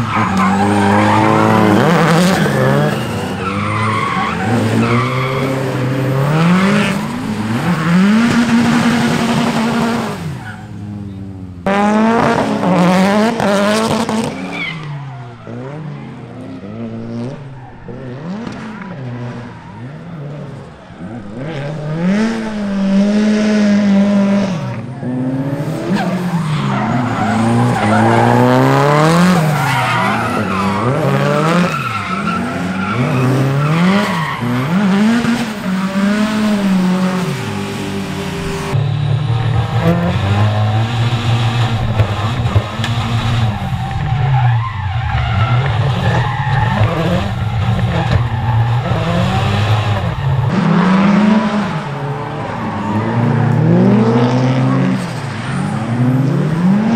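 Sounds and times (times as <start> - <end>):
car engines revving hard: 0.0 - 56.9.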